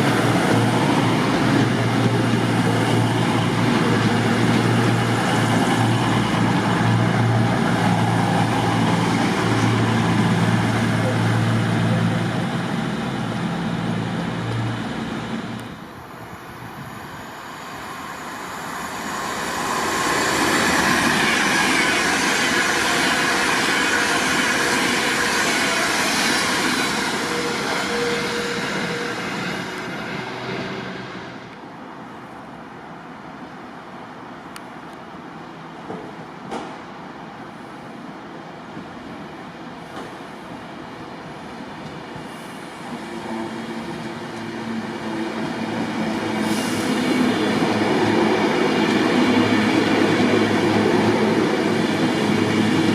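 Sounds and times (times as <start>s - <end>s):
train passing: 0.0s - 52.9s.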